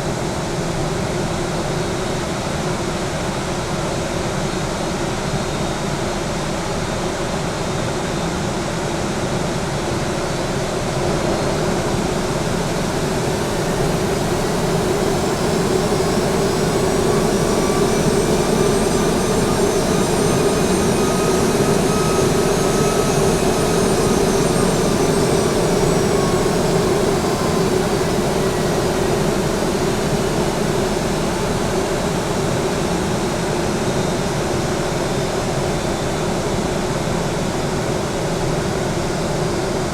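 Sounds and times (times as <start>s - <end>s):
jet engine whine: 0.0s - 39.9s
jet engines roaring: 10.8s - 37.1s.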